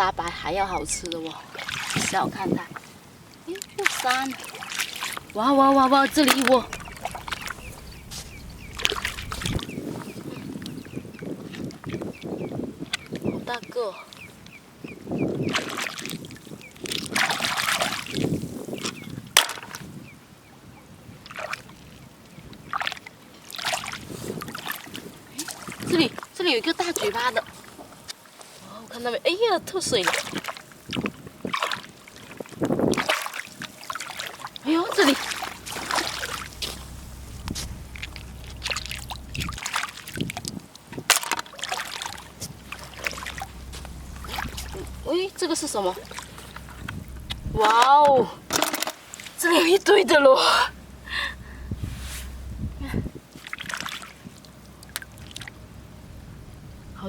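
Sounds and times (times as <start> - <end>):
splashing through wet sand: 32.9 - 49.5
scraping in wet sand: 51.8 - 52.5.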